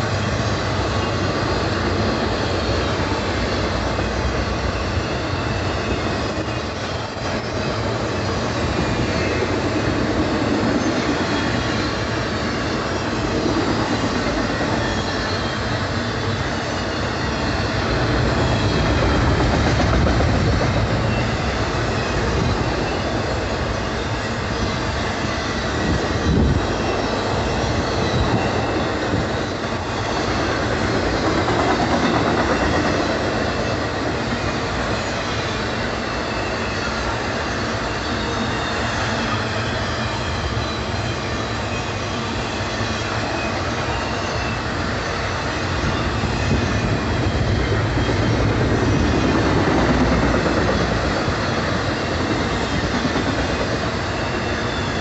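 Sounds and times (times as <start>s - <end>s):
freight train wheels clickety-clack: 0.0s - 55.0s.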